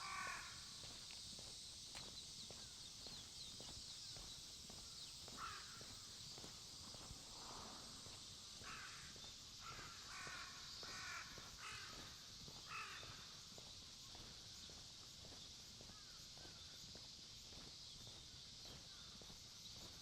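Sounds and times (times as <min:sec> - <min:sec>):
crows cawing: 0:00.0 - 0:00.8, 0:05.3 - 0:06.1, 0:08.6 - 0:13.5, 0:15.9 - 0:16.6.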